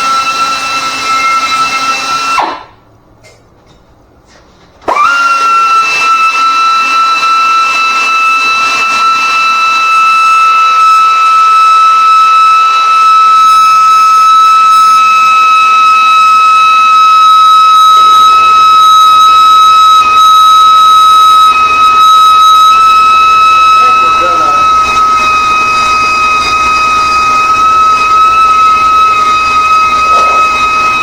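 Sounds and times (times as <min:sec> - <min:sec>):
high-pitched whine: 0:06.8 - 0:31.0.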